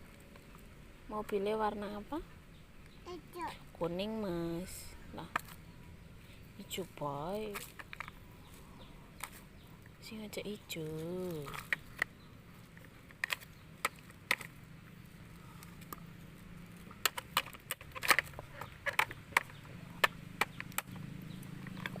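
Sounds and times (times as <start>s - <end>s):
plastic toys knocking together: 17.0s - 21.0s.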